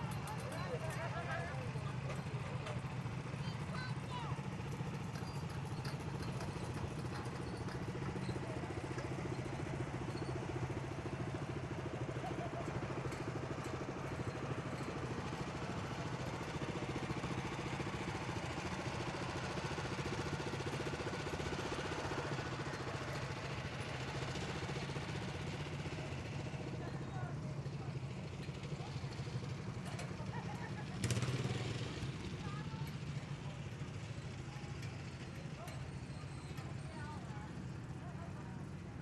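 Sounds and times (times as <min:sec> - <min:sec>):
tractor engine running: 0:04.4 - 0:34.4.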